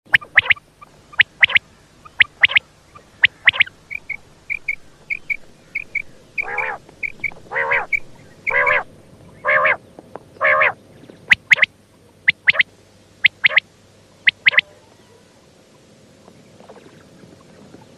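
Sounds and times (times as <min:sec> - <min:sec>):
quail calling: 0:00.1 - 0:09.8, 0:10.4 - 0:13.6, 0:14.2 - 0:15.0.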